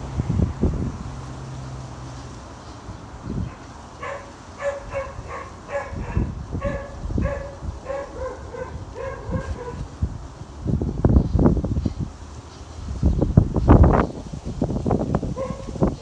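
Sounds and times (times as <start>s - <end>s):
wind gusts on microphone: 0.0s - 16.0s
animal barking calls: 3.4s - 9.9s, 15.3s - 15.9s.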